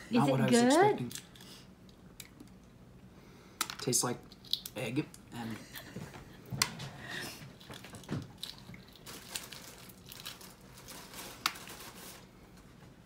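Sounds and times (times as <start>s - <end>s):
person chewing: 7.5s - 10.4s.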